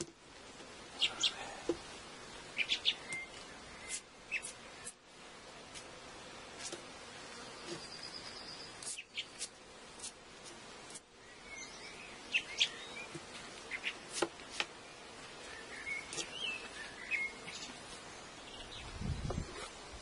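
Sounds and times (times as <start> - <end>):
outdoor hiss: 0.0 - 20.0
small birds chirping: 0.9 - 5.0, 7.2 - 9.5, 11.2 - 19.8.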